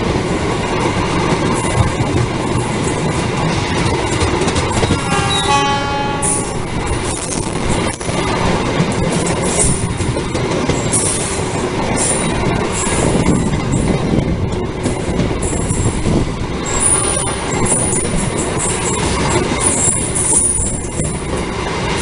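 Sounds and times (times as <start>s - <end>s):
train rumbling on rails: 0.0s - 22.0s
high-pitched wheel squeals: 4.8s - 6.6s.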